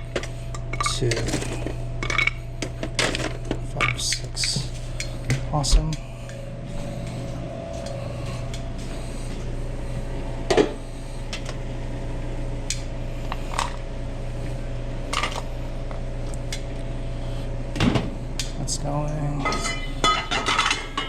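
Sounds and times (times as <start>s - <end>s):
kitchen equipment hum: 0.0s - 21.0s
dishes and utensils clinking: 19.4s - 21.0s.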